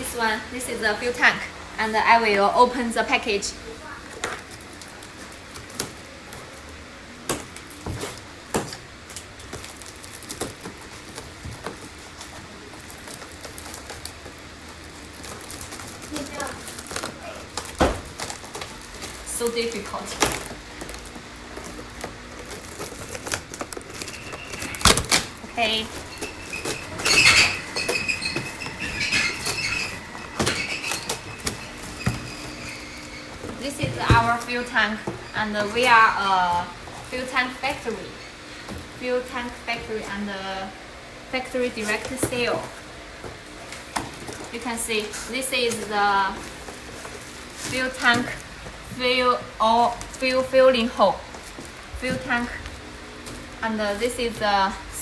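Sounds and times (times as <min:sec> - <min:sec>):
packaging rustling and clicking: 0:04.1 - 0:39.6, 0:41.7 - 0:54.0
packaging snaps: 0:20.0 - 0:27.0.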